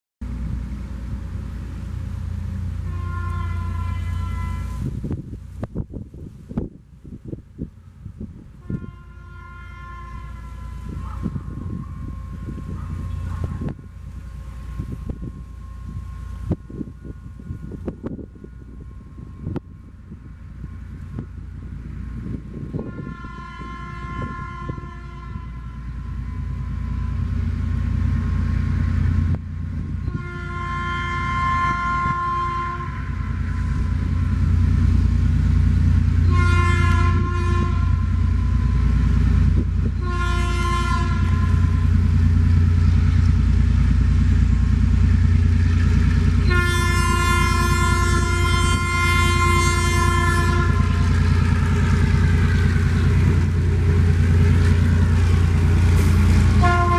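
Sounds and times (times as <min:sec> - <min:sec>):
diesel engine and train rumble: 0:00.2 - 0:56.9
locomotive air horn blasts: 0:02.8 - 0:05.2, 0:08.6 - 0:19.8, 0:22.7 - 0:27.6, 0:30.0 - 0:34.6, 0:36.1 - 0:39.2, 0:39.8 - 0:42.2, 0:45.6 - 0:56.9.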